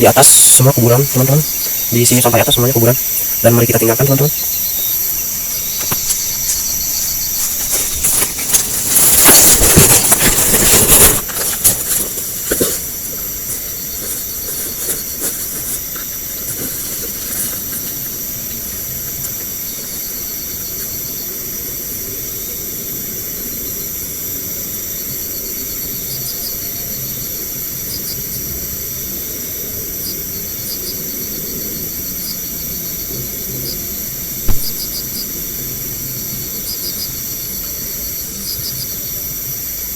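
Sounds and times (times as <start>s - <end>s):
crickets and insects chirping: 0.0s - 39.9s
loud rustling near microphone: 5.0s - 19.3s.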